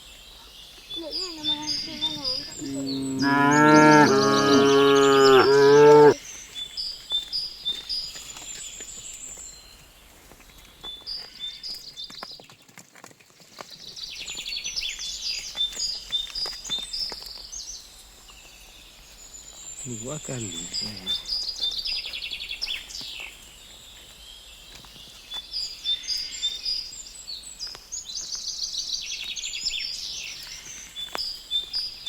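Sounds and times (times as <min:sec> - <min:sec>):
birds chirping: 0:00.0 - 0:07.3, 0:19.2 - 0:23.3
cow mooing: 0:02.0 - 0:06.2.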